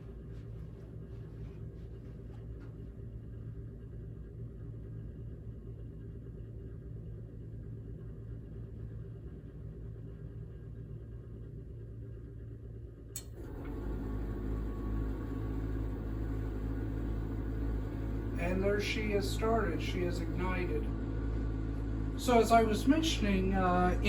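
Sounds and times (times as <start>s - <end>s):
furnace combustion rumble: 0.0s - 24.0s
furnace blower humming: 13.1s - 24.0s
ignition click: 13.2s - 14.3s.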